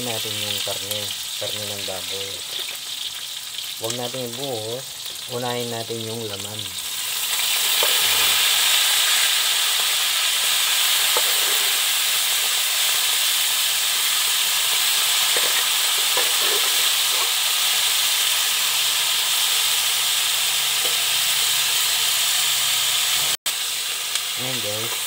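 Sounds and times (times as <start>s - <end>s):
meat sizzling in oil: 0.0s - 25.0s
metal ladle scraping pan: 11.0s - 11.9s, 15.3s - 17.4s.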